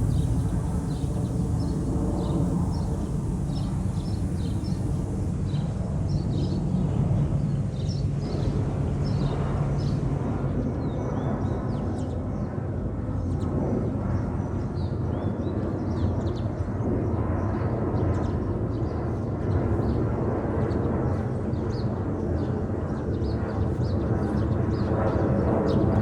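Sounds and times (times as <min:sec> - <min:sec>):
small birds chirping: 0:00.0 - 0:05.3
distant jet airliner rumble: 0:00.0 - 0:26.0.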